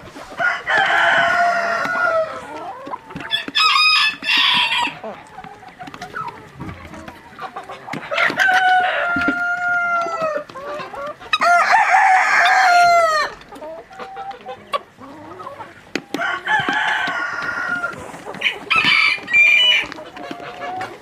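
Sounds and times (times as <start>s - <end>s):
chickens clucking: 0.0s - 21.0s
rooster crowing: 0.4s - 2.4s, 3.3s - 5.0s, 8.2s - 10.4s, 11.4s - 13.4s, 16.2s - 17.9s, 18.5s - 19.9s.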